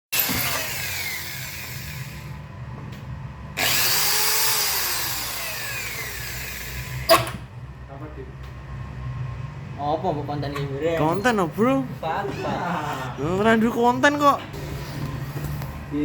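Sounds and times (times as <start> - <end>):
power tool whining: 0.1 - 2.4, 3.6 - 7.4.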